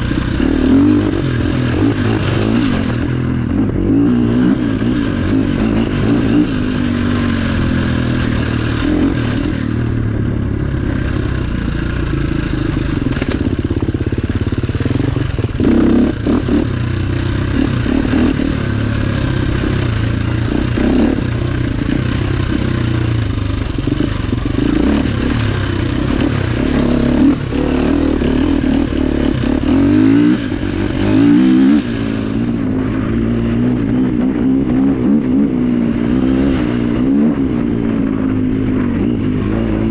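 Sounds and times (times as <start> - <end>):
motorcycle engine revving: 0.0 - 39.9
knocks from motorcycle on rough ground: 13.0 - 13.9.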